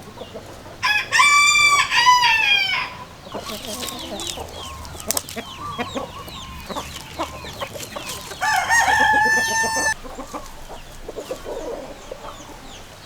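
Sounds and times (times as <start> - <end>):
chickens clucking: 0.0 - 13.0
rooster crowing: 0.8 - 10.0.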